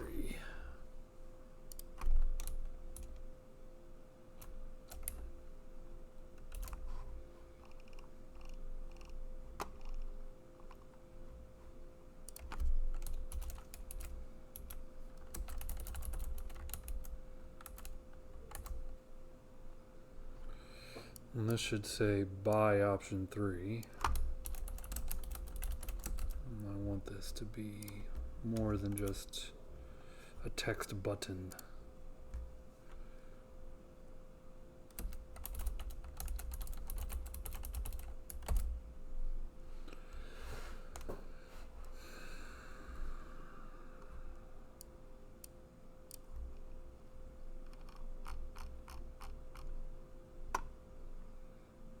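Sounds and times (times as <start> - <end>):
typing on keyboard: 1.7 - 3.2, 4.4 - 5.3, 6.4 - 6.8, 7.6 - 10.1, 12.3 - 18.8, 23.9 - 26.7, 27.8 - 29.2, 34.9 - 38.7, 47.6 - 49.7.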